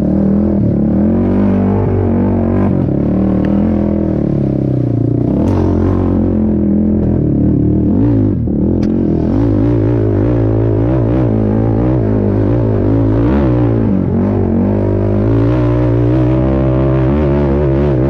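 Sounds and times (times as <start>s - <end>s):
quad engine revving: 0.0s - 18.0s.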